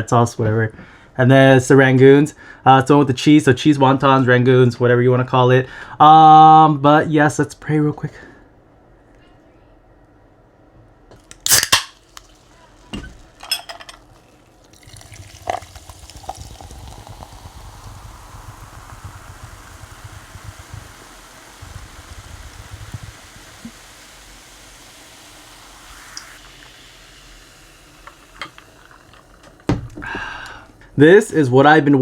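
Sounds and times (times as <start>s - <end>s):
liquid pouring into container: 11.8s - 30.8s.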